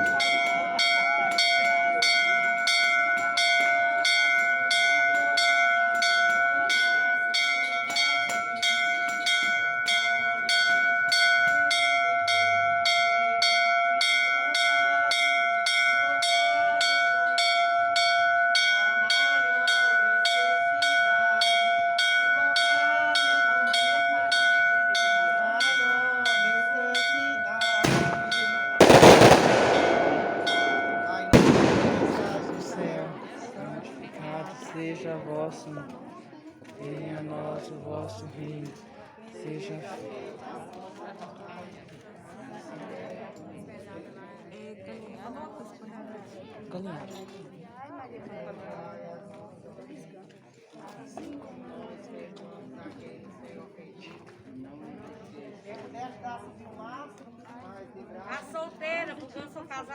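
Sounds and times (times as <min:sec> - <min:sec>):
bell struck rapidly: 0:27.6 - 0:33.4
firework bursting: 0:27.8 - 0:33.4.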